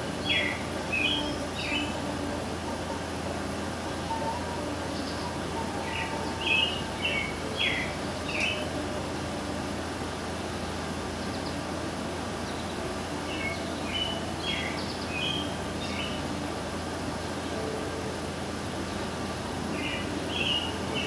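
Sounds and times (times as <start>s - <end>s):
bird chirping: 0.0s - 2.3s, 4.1s - 8.9s, 12.5s - 16.5s, 19.7s - 21.0s
steady background hum: 0.0s - 21.0s.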